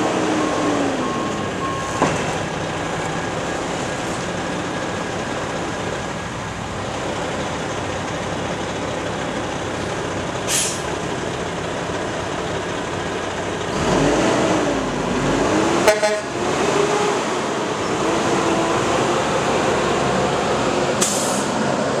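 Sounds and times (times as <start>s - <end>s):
diesel truck engine running: 0.0s - 22.0s
air hiss: 10.5s - 10.9s, 21.0s - 21.6s.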